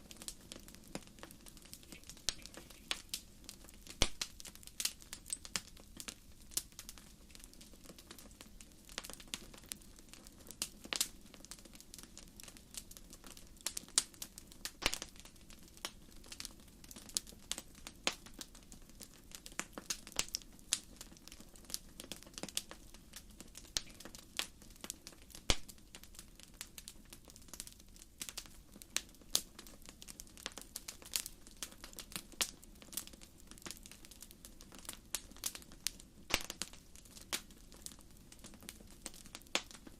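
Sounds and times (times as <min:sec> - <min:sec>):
firewood popping and snapping: 0:00.1 - 0:09.8, 0:13.6 - 0:16.4, 0:21.7 - 0:28.5, 0:29.2 - 0:39.9.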